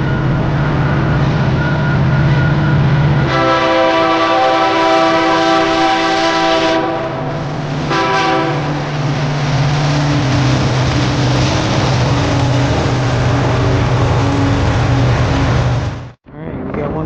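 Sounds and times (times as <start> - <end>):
train running noise: 0.0 - 16.2
diesel locomotive engine drone: 0.0 - 17.0
locomotive horn blasts: 3.2 - 8.8.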